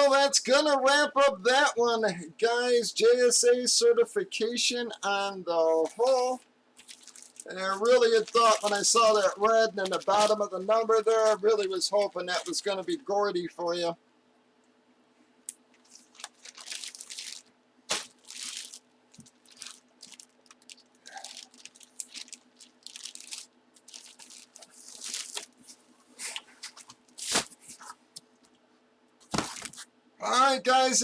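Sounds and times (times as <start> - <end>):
packaging rustling and crinkling: 5.8 - 12.9, 15.7 - 28.0, 29.2 - 29.9.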